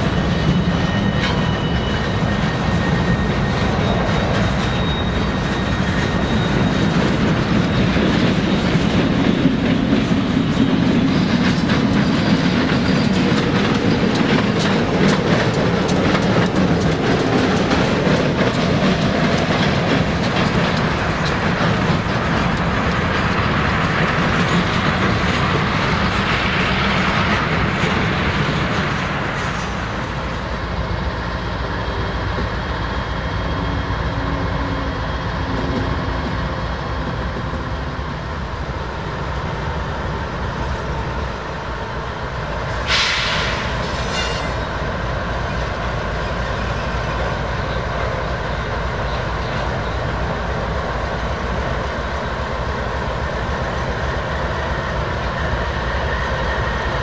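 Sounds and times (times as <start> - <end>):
diesel locomotive engine rumble: 0.0 - 57.0
train wheel noise: 0.0 - 57.0
short hiss: 42.8 - 44.6.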